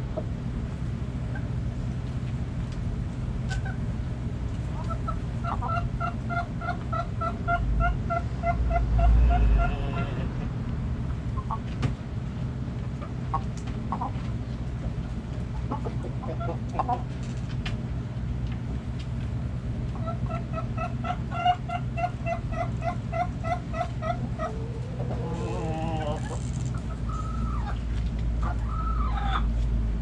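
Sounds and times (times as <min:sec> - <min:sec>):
steady low hum: 0:00.0 - 0:30.0
hens clucking: 0:04.6 - 0:11.8, 0:12.8 - 0:17.3, 0:19.9 - 0:29.6.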